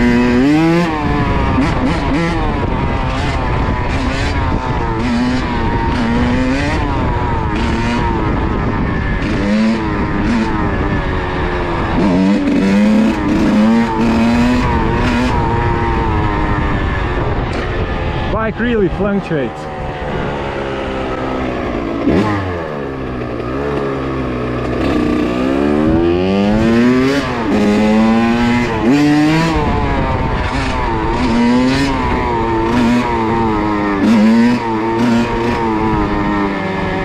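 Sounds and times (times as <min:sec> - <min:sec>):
two-stroke engine revving: 0:00.0 - 0:37.0.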